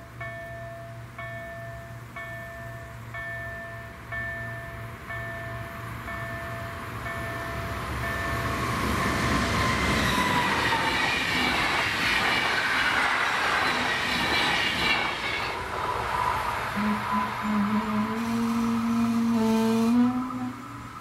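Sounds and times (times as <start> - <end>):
crossing warning bell ringing: 0.0 - 15.6
high ringing from wheels: 0.0 - 16.4
train wheels rushing on rails: 4.2 - 21.0.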